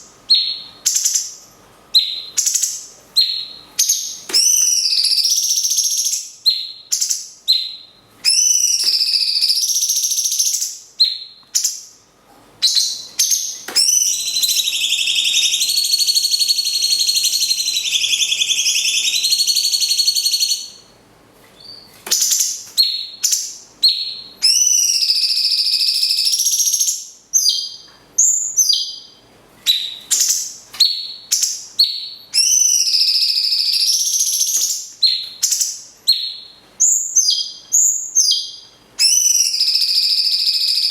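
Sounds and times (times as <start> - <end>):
birds singing: 0.0 - 12.0, 12.6 - 20.9, 21.6 - 40.9
long bird trill: 13.8 - 20.7.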